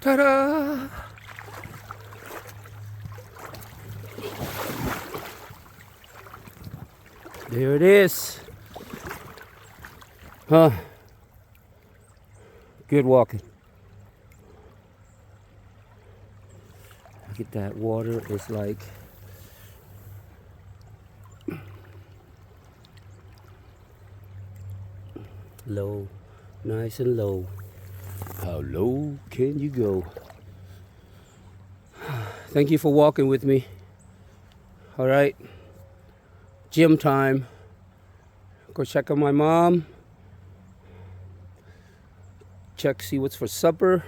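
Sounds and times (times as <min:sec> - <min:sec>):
creek trickling: 0:00.0 - 0:44.0
wind rumble on microphone: 0:03.0 - 0:07.1
light crunches and rustles: 0:27.5 - 0:28.7.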